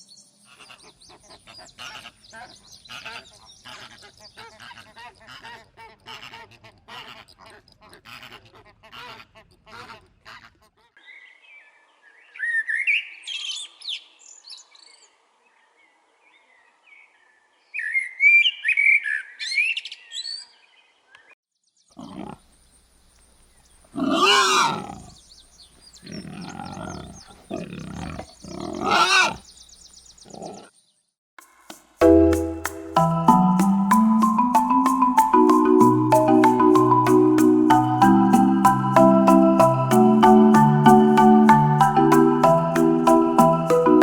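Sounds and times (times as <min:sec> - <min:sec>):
warbling chirping bird calls: 0:23.5 - 0:30.8.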